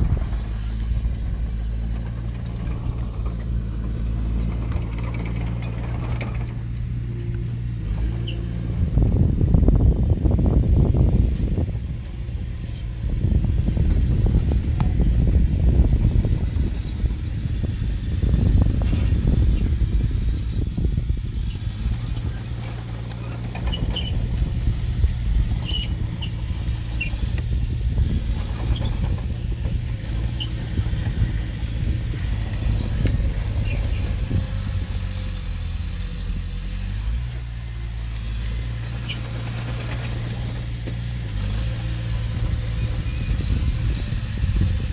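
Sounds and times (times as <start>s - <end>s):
diesel engine running under load: 0.0s - 44.9s
high squeaks and clicks: 25.6s - 27.6s.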